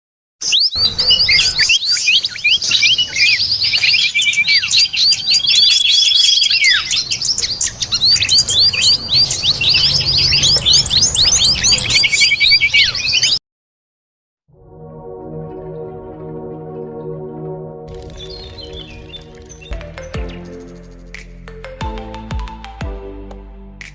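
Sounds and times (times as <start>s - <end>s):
small birds chirping: 0.4s - 13.4s, 17.9s - 21.4s
long whistled bird note: 18.0s - 21.0s.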